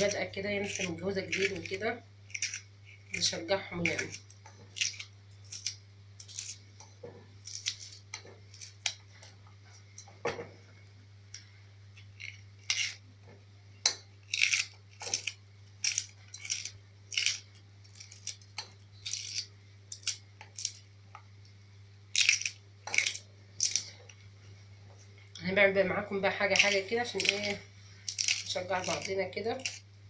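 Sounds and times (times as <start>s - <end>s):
knife cutting vegetables: 0.0s - 6.6s, 14.2s - 20.8s, 26.5s - 29.8s
steady low hum: 0.0s - 30.0s.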